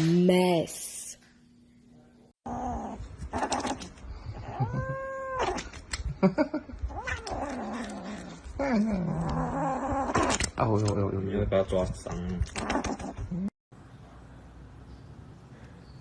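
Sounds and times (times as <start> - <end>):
cat yowling: 4.4 - 5.6.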